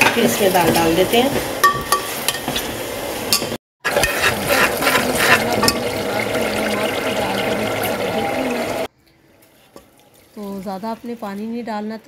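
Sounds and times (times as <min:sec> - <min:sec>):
masala sizzling in oil: 0:00.2 - 0:08.9.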